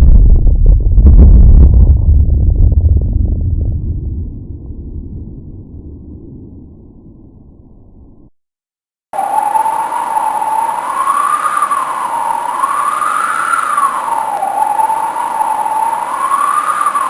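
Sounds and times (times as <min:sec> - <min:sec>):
steady hiss: 0:09.2 - 0:17.0
wailing siren: 0:09.2 - 0:17.0.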